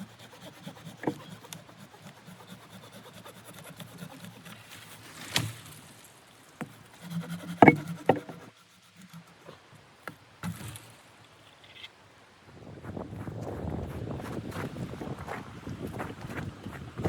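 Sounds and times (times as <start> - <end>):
knocks of hard object handling: 7.6 - 8.4.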